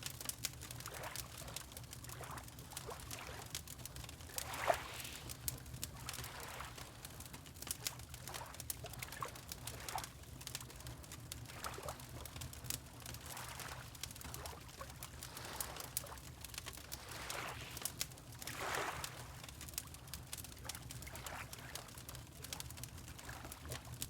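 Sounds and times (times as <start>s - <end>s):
wood fire crackling: 0.0s - 24.0s
water lapping: 4.3s - 7.3s, 11.5s - 12.2s, 13.1s - 19.6s, 20.6s - 22.1s, 23.1s - 23.9s.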